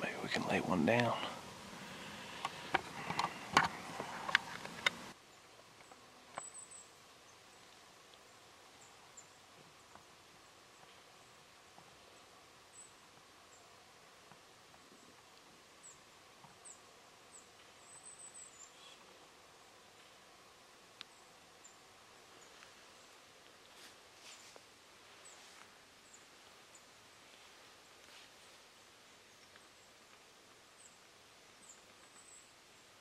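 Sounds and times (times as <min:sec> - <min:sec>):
small bird chirping: 0:05.3 - 0:07.7, 0:15.8 - 0:19.1, 0:30.8 - 0:32.8.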